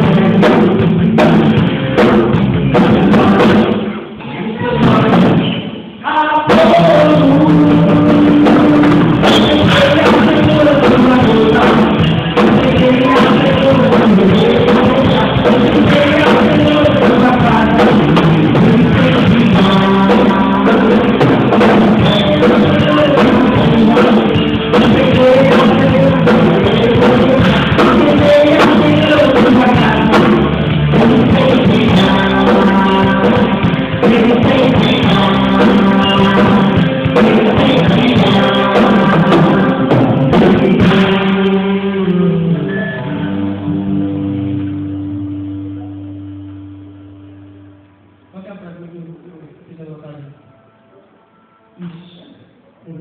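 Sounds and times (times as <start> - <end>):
worship band music: 0.0 - 53.0
singing: 2.9 - 43.6.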